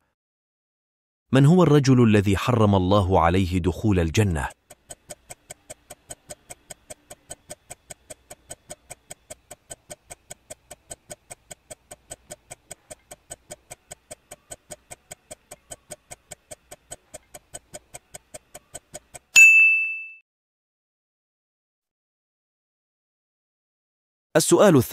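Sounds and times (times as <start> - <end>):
countdown timer ticking: 3.7 - 19.4
bright ding: 19.4 - 20.2.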